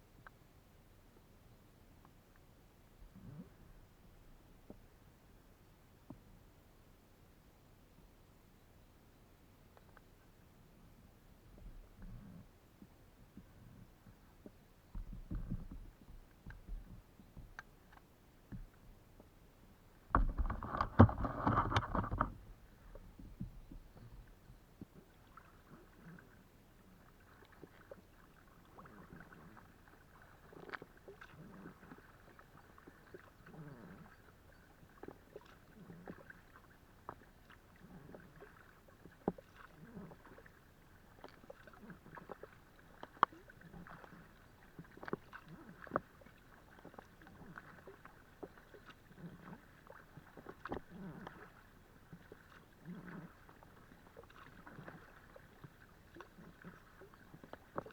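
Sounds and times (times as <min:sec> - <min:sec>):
paddle splashing water: 0:19.9 - 0:57.9.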